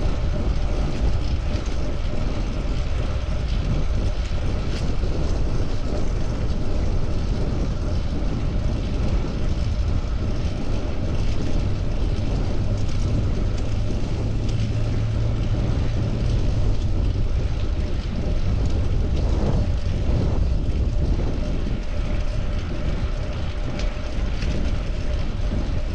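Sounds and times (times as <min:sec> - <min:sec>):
wind on microphone: 0:00.0 - 0:25.9
road noise: 0:09.4 - 0:25.9.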